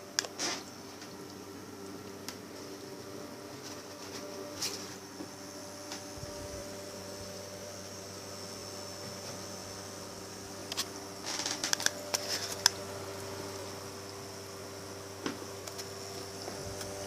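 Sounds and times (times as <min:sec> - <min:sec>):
electric cooling fan humming: 0:00.0 - 0:17.0
sharp clicks and crackles: 0:10.7 - 0:12.8.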